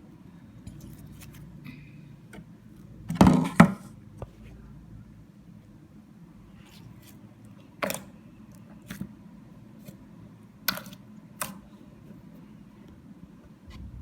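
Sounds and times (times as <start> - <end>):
steady low hum: 13.4 - 14.0.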